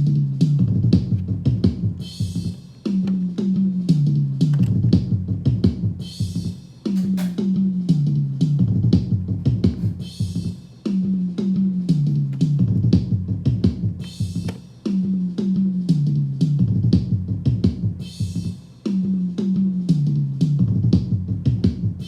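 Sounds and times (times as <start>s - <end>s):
bass line: 0.0s - 22.0s
drum beat: 0.8s - 7.8s, 8.8s - 15.8s.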